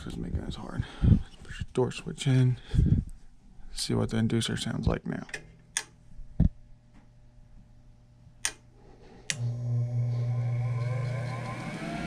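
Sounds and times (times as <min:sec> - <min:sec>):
draft inducer motor humming: 0:09.3 - 0:12.0.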